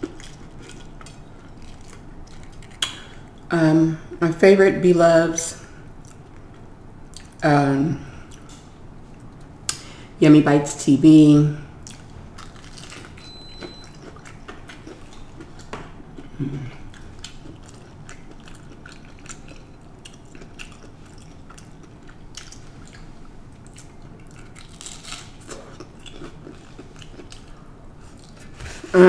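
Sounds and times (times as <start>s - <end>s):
crunchy chewing: 0.0s - 3.5s, 11.8s - 28.9s.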